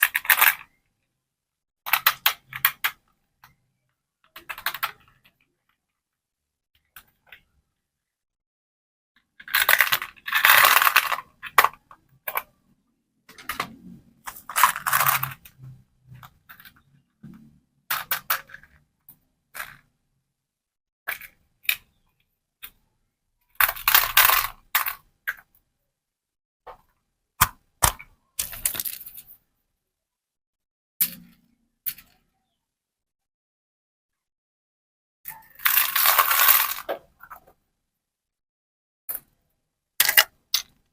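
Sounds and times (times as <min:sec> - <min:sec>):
small plastic pieces clicking: 0:00.0 - 0:00.7, 0:04.3 - 0:05.3, 0:09.4 - 0:12.6, 0:17.9 - 0:19.9, 0:23.5 - 0:25.5, 0:27.4 - 0:29.3, 0:35.3 - 0:37.5, 0:40.0 - 0:40.9.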